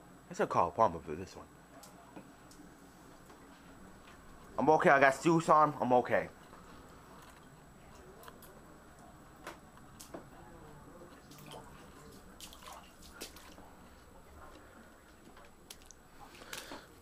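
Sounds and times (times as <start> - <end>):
running water: 10.8 - 14.8
water dripping: 11.2 - 13.6, 15.6 - 16.7.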